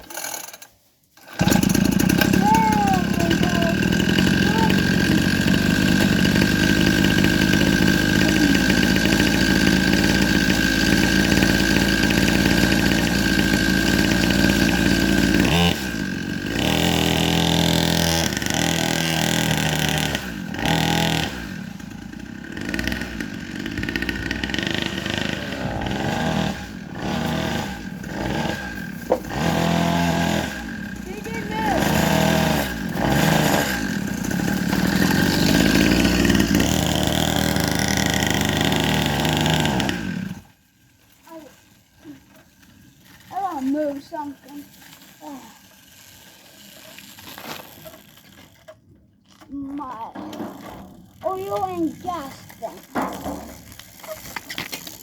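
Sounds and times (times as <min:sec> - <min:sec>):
dirt bike engine revving: 0:01.2 - 0:40.6.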